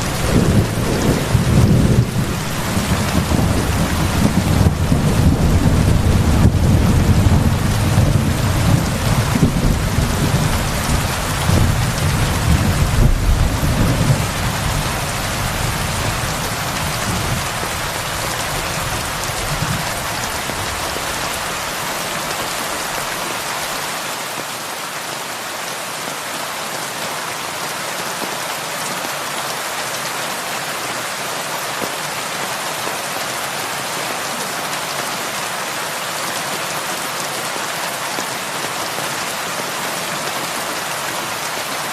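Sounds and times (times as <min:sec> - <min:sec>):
thunder rumbling: 0:00.0 - 0:21.3
heavy rain on a roof: 0:00.0 - 0:41.9.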